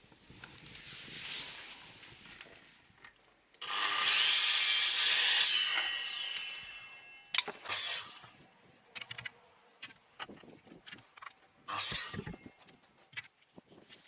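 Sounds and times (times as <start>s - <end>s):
bamboo scraping with ringing squeal: 3.6s - 8.4s, 11.7s - 12.6s.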